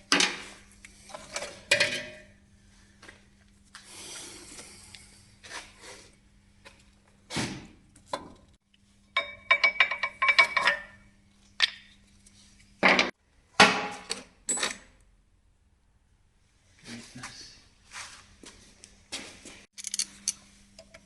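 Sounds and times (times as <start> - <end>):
metal tools clinking on metal: 19.8 - 20.4.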